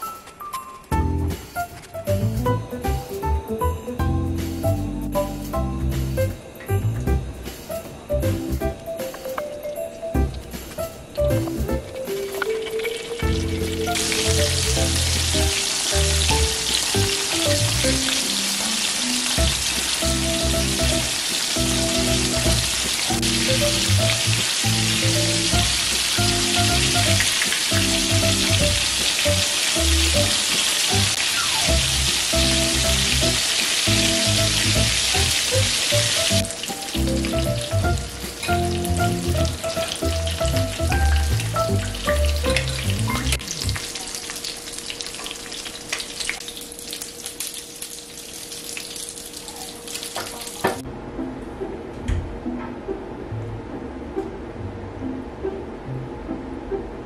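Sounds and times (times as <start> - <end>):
background music: 0.0 - 43.9, 50.8 - 57.0
shrimp sizzling in hot oil: 11.5 - 50.6.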